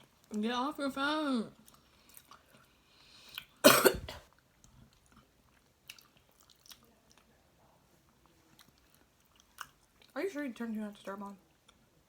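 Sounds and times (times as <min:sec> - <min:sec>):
biting and chewing food: 0:04.3 - 0:07.4, 0:08.0 - 0:10.2.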